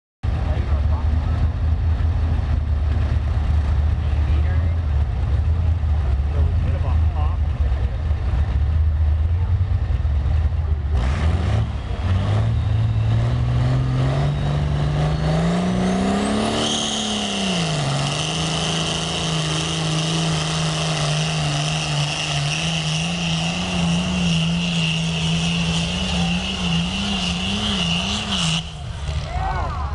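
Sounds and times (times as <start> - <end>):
diesel tractor engine under load: 0.2 - 29.9
high-pitched squeal: 11.0 - 29.9.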